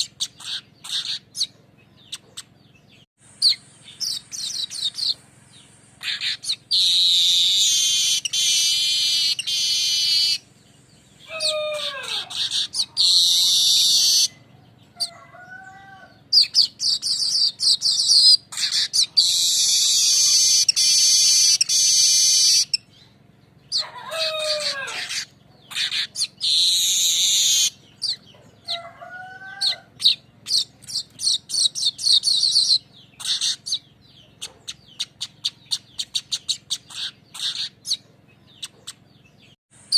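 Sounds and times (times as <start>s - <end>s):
bird buzzy trills: 0.0s - 39.9s
bird downward-sliding calls: 6.0s - 10.4s, 11.2s - 14.4s, 23.7s - 33.8s.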